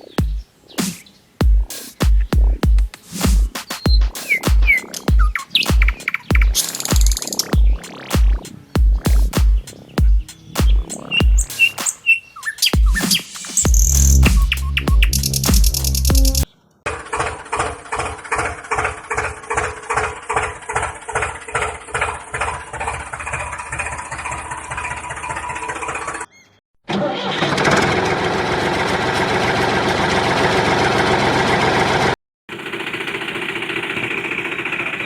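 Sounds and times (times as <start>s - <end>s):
tractor engine chugging: 15.0s - 26.3s, 27.5s - 35.0s.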